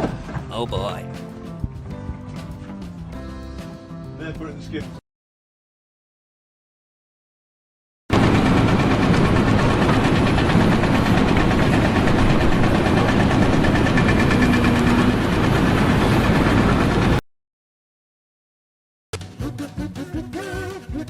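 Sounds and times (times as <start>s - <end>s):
engine running loudly: 8.1s - 17.2s.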